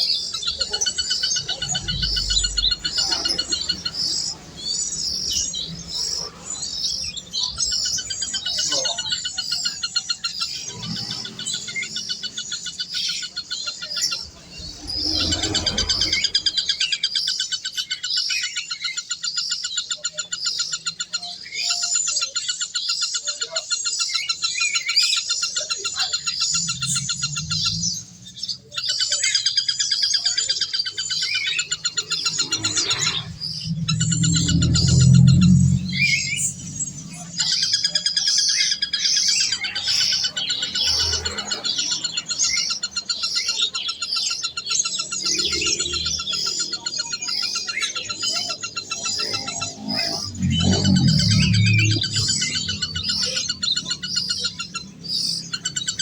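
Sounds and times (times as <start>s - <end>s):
birds chirping in chorus: 0.0s - 56.0s
low rumble: 26.1s - 28.7s, 31.8s - 38.1s, 48.9s - 55.4s.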